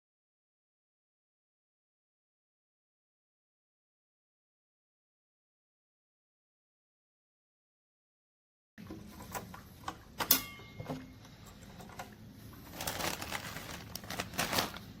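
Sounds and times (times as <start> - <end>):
rustling: 12.6 - 15.0.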